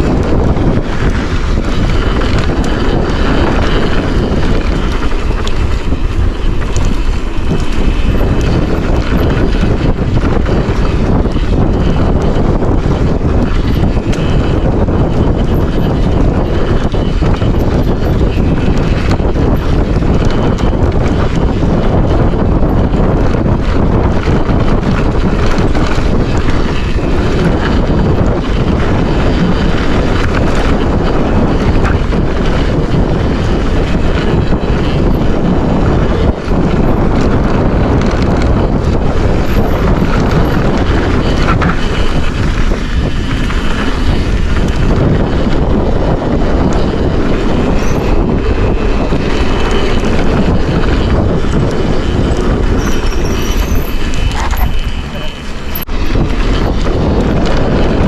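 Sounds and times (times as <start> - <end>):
wind buffeting microphone: 0.0 - 58.0
faint high squeaks: 52.8 - 55.6.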